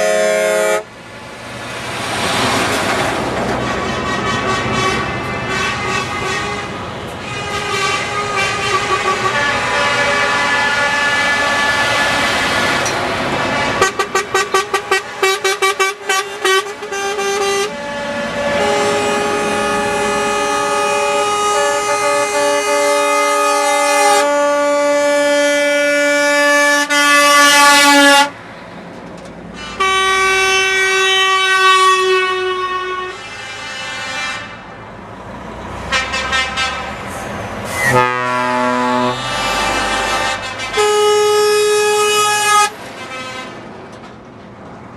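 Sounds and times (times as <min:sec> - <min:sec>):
truck air horn blasts: 0:00.0 - 0:01.0, 0:03.6 - 0:28.4, 0:29.6 - 0:34.7, 0:35.8 - 0:43.8
truck engine noise: 0:00.0 - 0:44.9.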